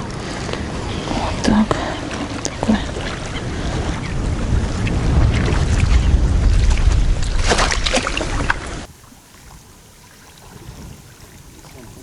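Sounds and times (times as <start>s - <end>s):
wind buffeting microphone: 0.0s - 12.0s
faint outdoor hiss: 8.9s - 12.0s.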